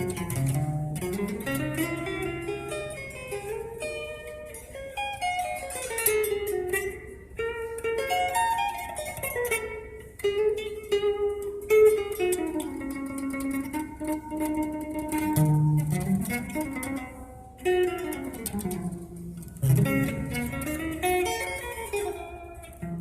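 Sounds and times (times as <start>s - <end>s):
plucked string instrument melody: 0.0s - 23.0s.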